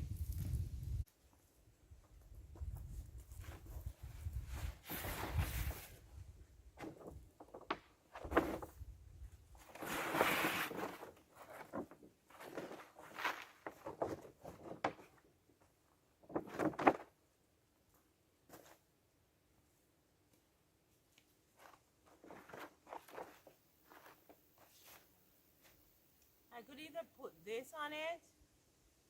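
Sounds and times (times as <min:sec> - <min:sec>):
rustling and scraping material: 0:02.6 - 0:06.2, 0:06.8 - 0:08.8, 0:09.6 - 0:15.3, 0:16.2 - 0:17.2, 0:21.5 - 0:26.0.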